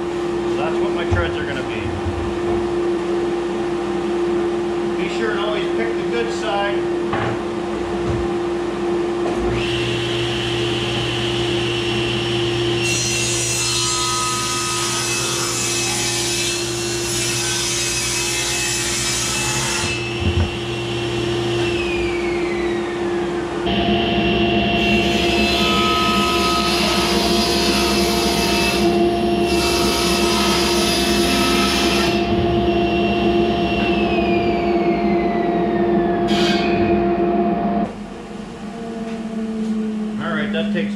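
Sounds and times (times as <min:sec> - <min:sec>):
table saw cutting wood: 0:09.4 - 0:22.9, 0:23.6 - 0:37.9.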